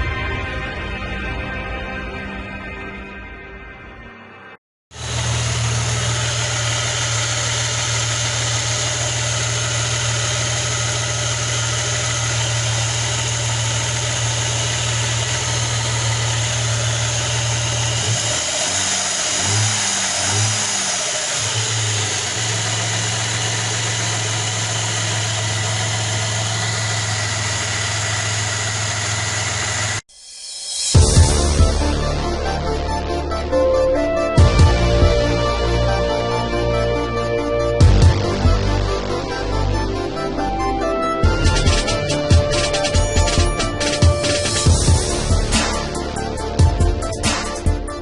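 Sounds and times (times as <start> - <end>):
engine knocking: 4.9 - 30.0, 41.2 - 47.7
car engine idling and revving: 4.9 - 30.1, 31.0 - 48.0.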